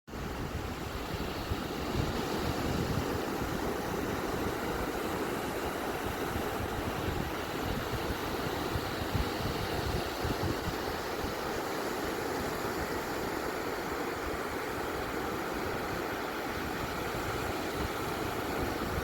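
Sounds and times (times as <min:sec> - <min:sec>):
ocean waves washing onto beach: 0:00.1 - 0:19.0.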